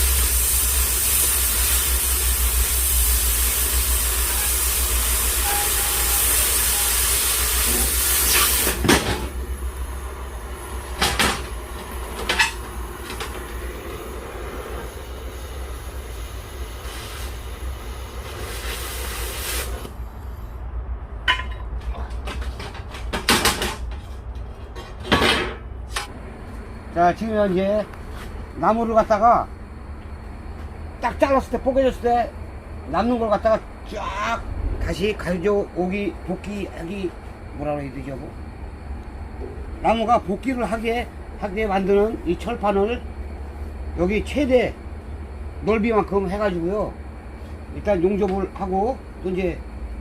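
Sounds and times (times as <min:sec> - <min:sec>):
arc welding hiss: 0:00.0 - 0:20.1.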